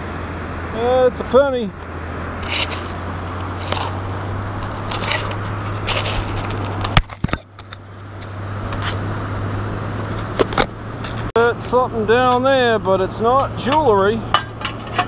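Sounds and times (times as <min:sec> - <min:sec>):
metal scoop scraping and rustling: 0:02.4 - 0:09.1, 0:13.5 - 0:15.0.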